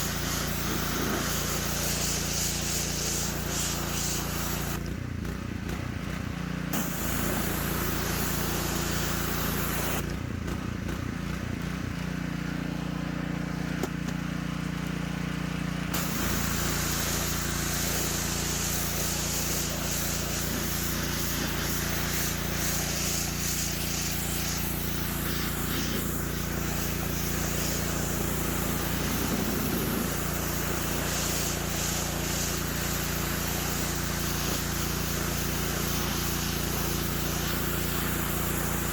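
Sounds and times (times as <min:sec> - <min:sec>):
high hiss of water spray: 0:00.0 - 0:04.8, 0:06.8 - 0:10.0, 0:15.9 - 0:38.9
pressure washer engine hum: 0:00.0 - 0:38.9.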